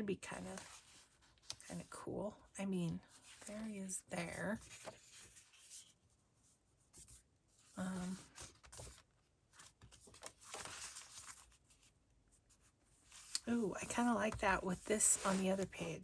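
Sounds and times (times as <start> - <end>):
paper rustling and sliding: 4.6 - 6.0, 8.0 - 11.9, 13.0 - 16.0.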